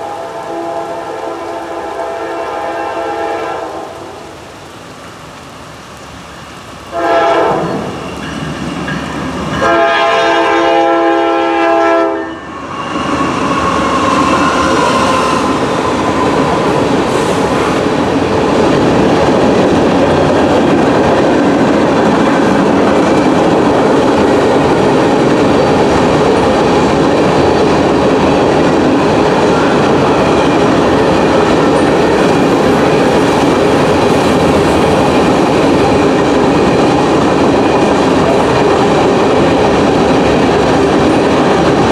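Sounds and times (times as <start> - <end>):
locomotive horn blasts: 0.0 - 4.2, 6.9 - 8.0, 9.6 - 12.5
train wheels clickety-clack: 0.0 - 41.9.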